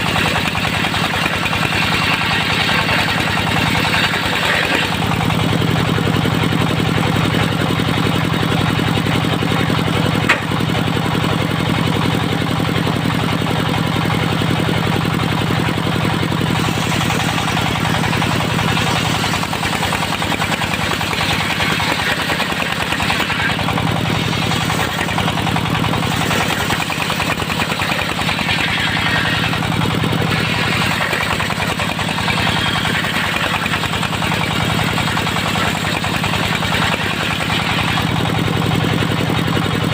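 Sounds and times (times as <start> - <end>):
sawmill engine running: 0.0 - 39.9
sharp knock: 10.3 - 10.5.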